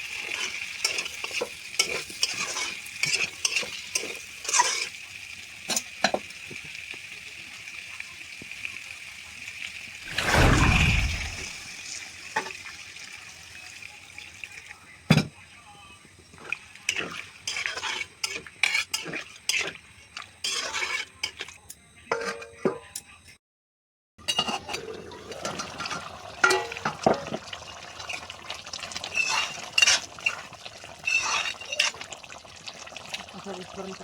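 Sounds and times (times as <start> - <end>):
metal spoon stirring in a pot: 0.2 - 5.0, 16.9 - 21.6, 29.1 - 32.1.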